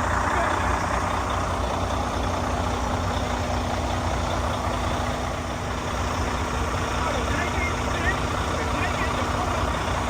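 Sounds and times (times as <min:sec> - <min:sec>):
diesel truck engine rumbling: 0:00.0 - 0:10.0.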